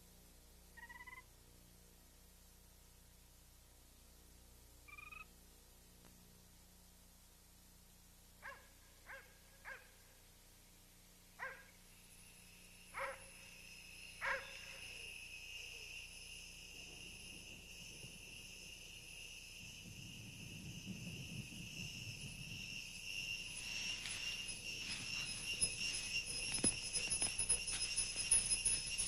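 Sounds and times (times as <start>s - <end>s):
dog barking: 8.4s - 10.0s, 11.4s - 11.7s, 13.0s - 13.3s, 14.2s - 14.7s.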